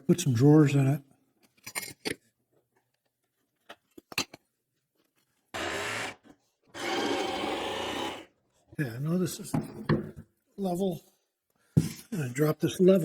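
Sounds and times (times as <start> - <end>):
jigsaw cutting a panel: 5.6 - 8.3.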